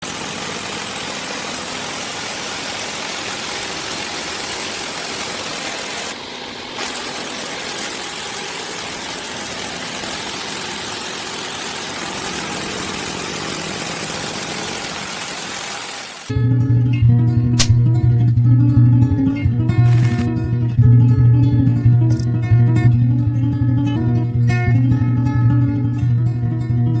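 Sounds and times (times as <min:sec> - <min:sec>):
small motor whirring: 0:00.0 - 0:16.3, 0:19.9 - 0:20.3.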